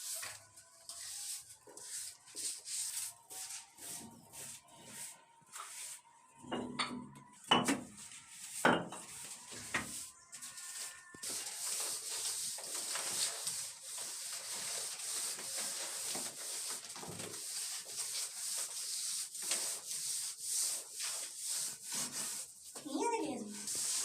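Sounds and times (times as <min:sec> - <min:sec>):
plastering tool scraping plaster: 0:08.2 - 0:24.0.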